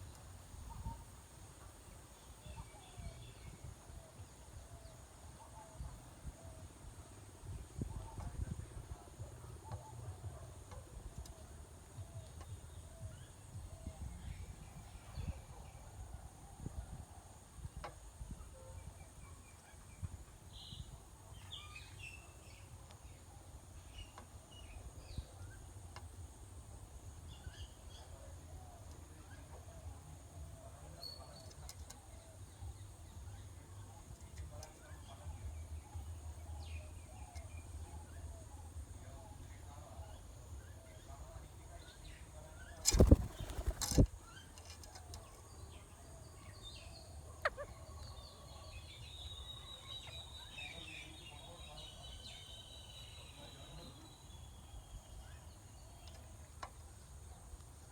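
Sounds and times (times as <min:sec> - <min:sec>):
faint animal calls: 0:47.1 - 0:48.5.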